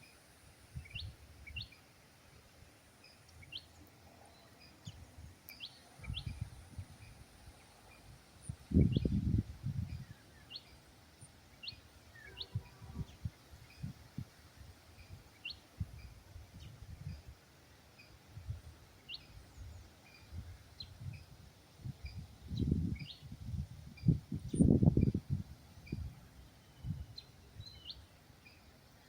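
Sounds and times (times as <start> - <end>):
birds chirping: 3.0 - 9.2, 9.9 - 14.2.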